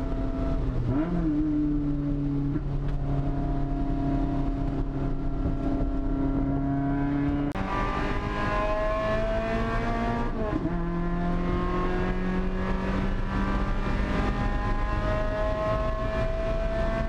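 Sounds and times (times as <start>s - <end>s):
car engine under load: 0.0s - 17.0s.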